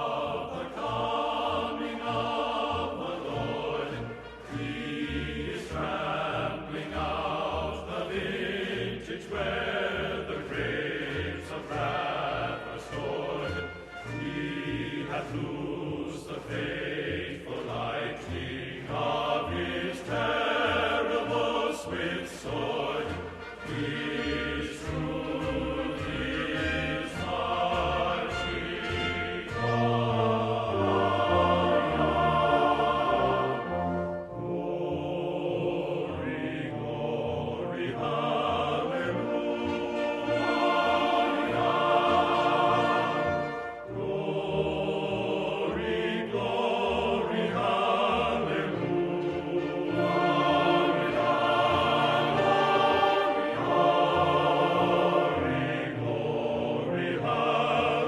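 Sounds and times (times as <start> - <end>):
choir singing: 0.0 - 58.0
orchestra playing: 9.9 - 15.7, 18.5 - 58.0.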